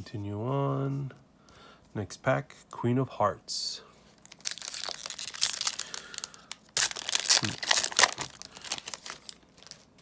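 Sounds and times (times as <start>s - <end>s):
foil wrapper crinkling and tearing: 4.2s - 10.0s.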